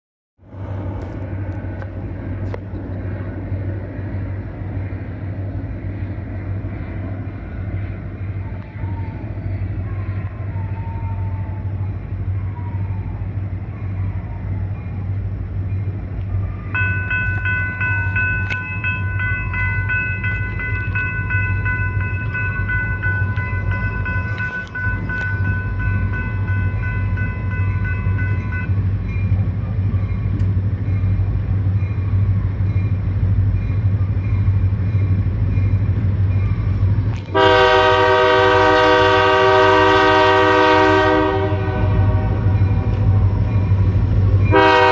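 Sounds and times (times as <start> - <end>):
diesel locomotives rumbling: 0.4 - 44.9
locomotive air horn blast: 37.3 - 42.9, 44.5 - 44.9.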